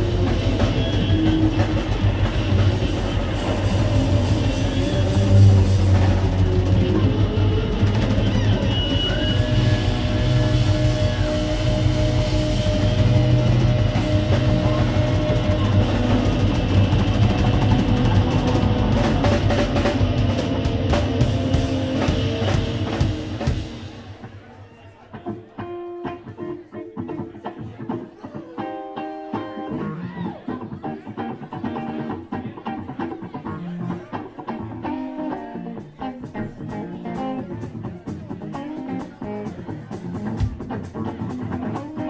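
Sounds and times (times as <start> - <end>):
live band playing: 0.0 - 42.0
plucked guitar notes: 0.0 - 42.0.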